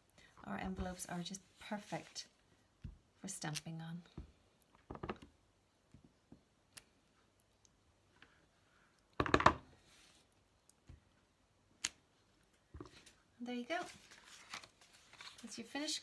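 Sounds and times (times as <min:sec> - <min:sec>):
paper rustle: 0:12.9 - 0:16.0.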